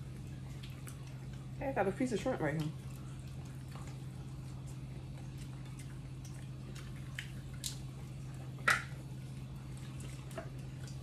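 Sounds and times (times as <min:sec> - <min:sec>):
low electrical hum: 0:00.0 - 0:11.0
person eating clicks and smacks: 0:00.5 - 0:01.5, 0:02.6 - 0:09.0.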